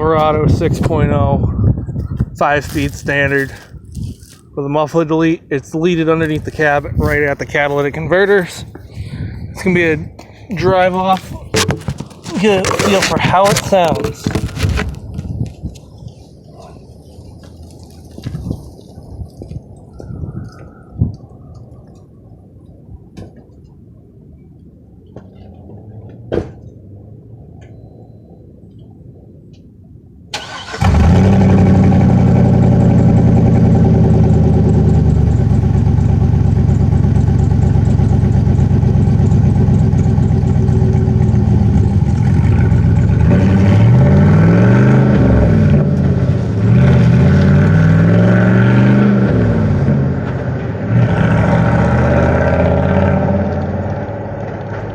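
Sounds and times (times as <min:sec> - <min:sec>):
engine exhaust roaring and revving: 0:06.2 - 0:15.0, 0:30.4 - 0:54.9.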